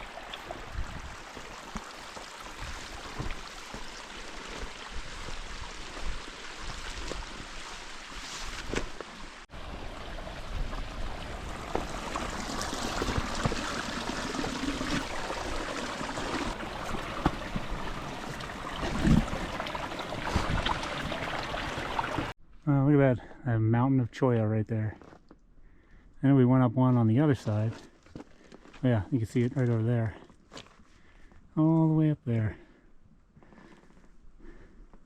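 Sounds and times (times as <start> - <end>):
water running over rocks: 0.0 - 22.3.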